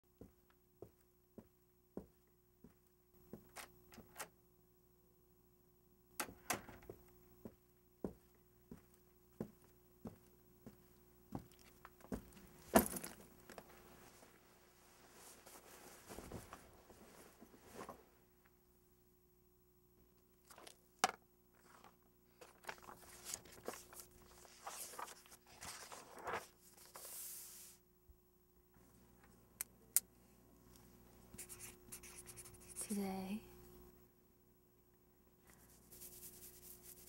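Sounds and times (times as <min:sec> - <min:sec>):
soft rustles and scuffs: 0:13.5 - 0:18.1.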